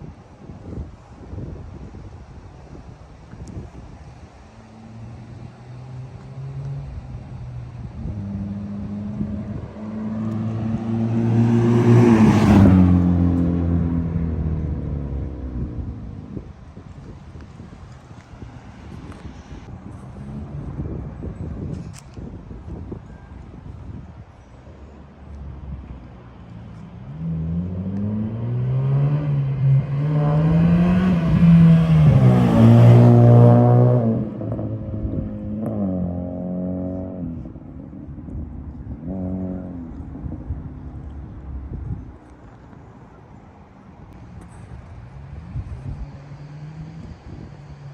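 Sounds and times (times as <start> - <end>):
car driving past: 4.8 - 16.3, 27.0 - 37.8.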